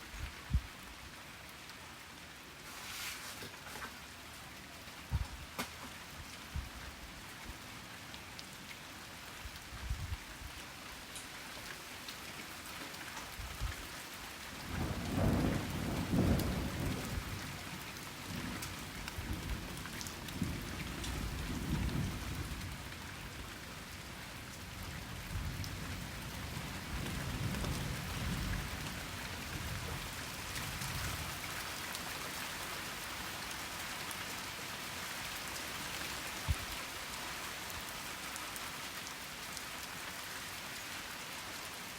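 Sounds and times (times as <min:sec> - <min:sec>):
steady rain falling: 0:00.0 - 0:41.9
thunder rumbling: 0:14.8 - 0:17.7.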